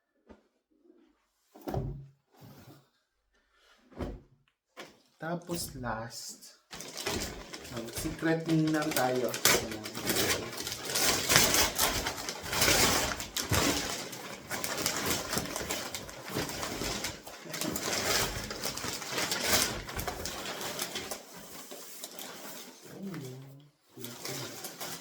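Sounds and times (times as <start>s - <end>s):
gift wrapping paper crinkling: 6.7s - 25.0s.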